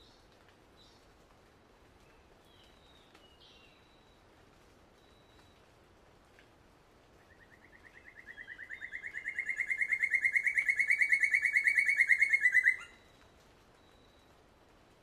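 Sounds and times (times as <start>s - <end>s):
bird trilling: 7.4s - 13.0s.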